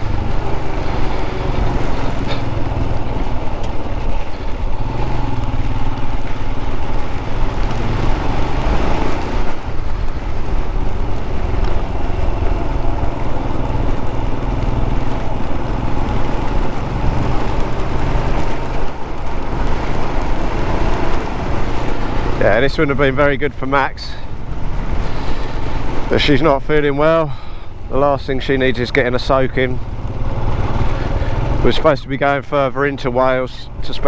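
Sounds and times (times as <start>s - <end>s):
motorcycle engine running: 0.0s - 34.0s
rain: 0.0s - 34.0s.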